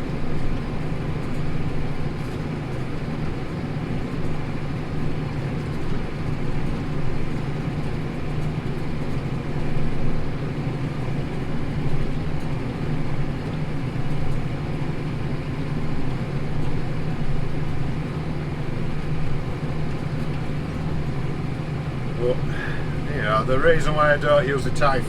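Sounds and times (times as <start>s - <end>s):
tractor diesel engine droning: 13.0s - 25.0s.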